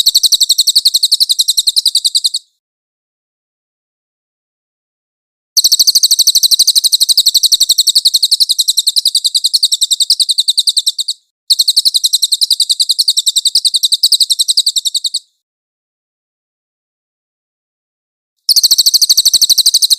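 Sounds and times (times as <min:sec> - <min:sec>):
songbird trill: 0:00.0 - 0:02.6, 0:05.6 - 0:15.4, 0:18.5 - 0:19.9.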